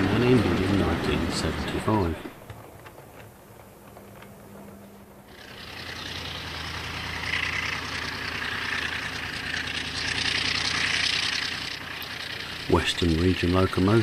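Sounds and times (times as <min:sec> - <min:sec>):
diesel locomotive engine drone: 0:00.0 - 0:14.0
hissing rush: 0:05.3 - 0:14.0.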